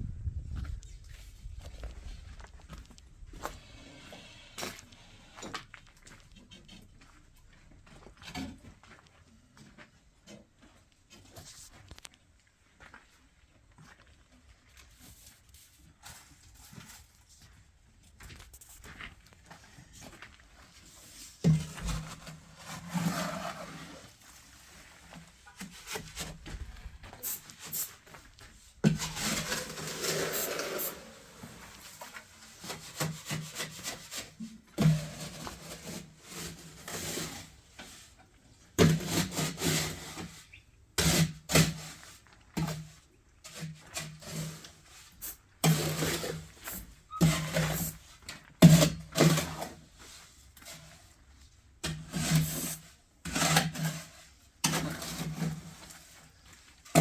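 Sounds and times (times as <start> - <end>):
rough scraping strokes: 20.8 - 38.1, 51.8 - 57.0.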